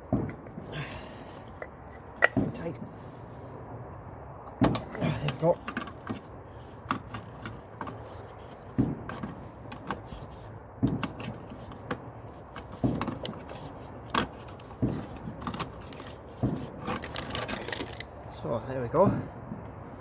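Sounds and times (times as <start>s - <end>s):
ignition coil pack clicks and knocks: 1.5s - 2.8s, 4.5s - 8.1s, 8.7s - 10.2s, 10.8s - 18.1s.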